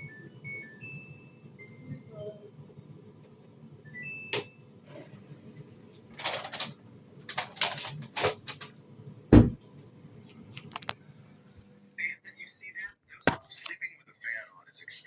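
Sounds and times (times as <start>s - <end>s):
washing machine clicks and clatter: 6.1s - 8.8s
heavy thump: 9.3s - 9.6s.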